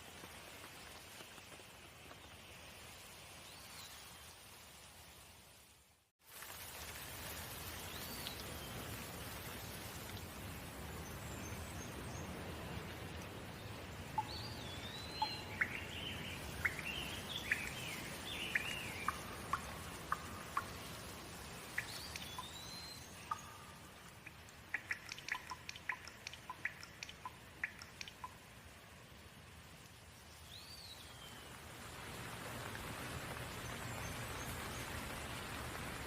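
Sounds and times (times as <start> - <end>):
steady rain falling: 0.0 - 36.0
songbirds chirping and whistling: 14.2 - 20.7.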